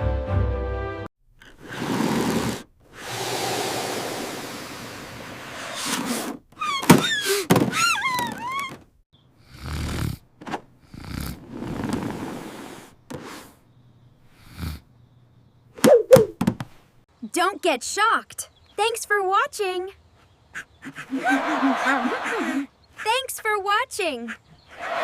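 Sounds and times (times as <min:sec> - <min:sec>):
squeaky cries: 0:06.6 - 0:08.8
sharp knocks: 0:15.8 - 0:16.7.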